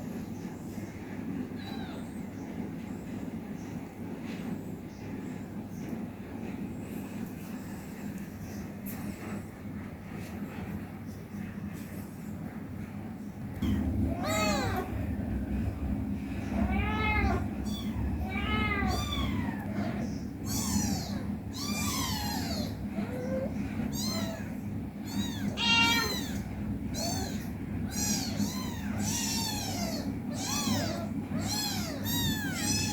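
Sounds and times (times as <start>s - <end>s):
kitten mewing: 13.6s - 15.0s, 16.6s - 32.9s
low hum: 13.6s - 23.8s.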